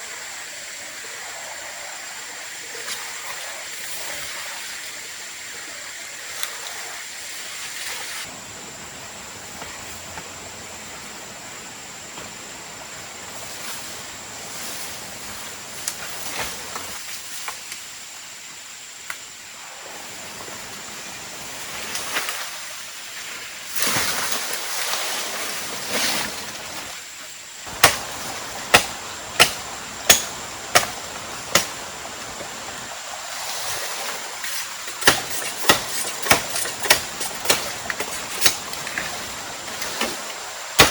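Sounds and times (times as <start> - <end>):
steady rushing hiss: 0.0 - 40.9
tool chopping wood: 27.7 - 31.8, 34.9 - 39.2.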